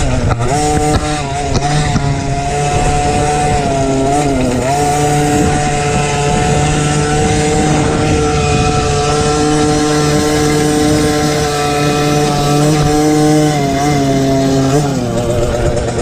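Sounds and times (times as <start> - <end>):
small motocross bike engine revving: 0.0 - 16.0.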